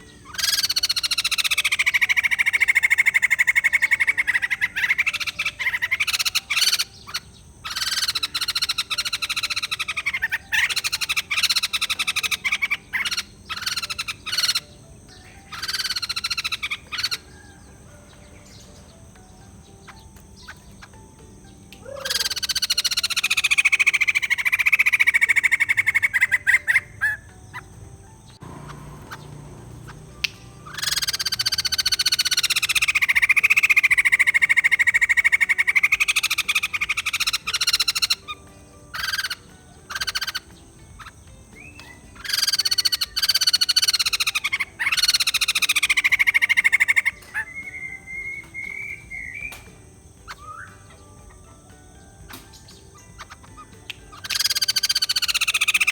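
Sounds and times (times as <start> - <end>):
bird rattling cackles: 0.3 - 14.7, 15.5 - 17.9, 21.9 - 27.7, 28.5 - 55.9
whistled bird note: 21.8 - 55.9.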